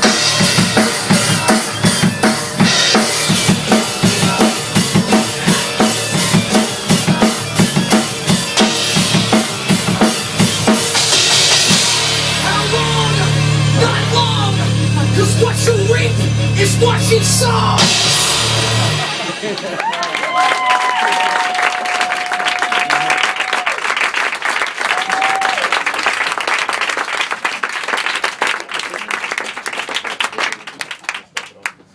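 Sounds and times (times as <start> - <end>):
drum kit steady beat: 0.0 - 19.8
cymbal crash: 11.0 - 19.6
people applauding: 19.4 - 31.9.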